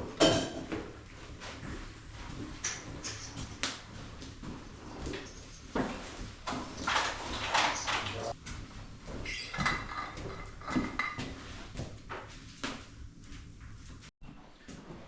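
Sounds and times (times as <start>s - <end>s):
cookware clattering: 0.2s - 0.7s, 9.2s - 11.4s.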